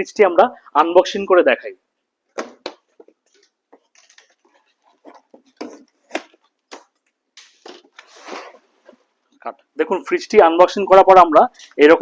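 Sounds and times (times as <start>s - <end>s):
packaging rustling: 2.4s - 9.0s.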